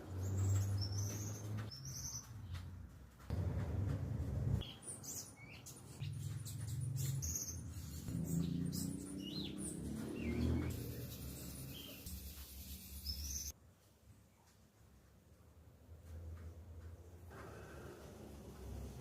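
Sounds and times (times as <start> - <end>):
birds chirping: 0.0 - 13.5
low uneven rumble: 3.3 - 4.6.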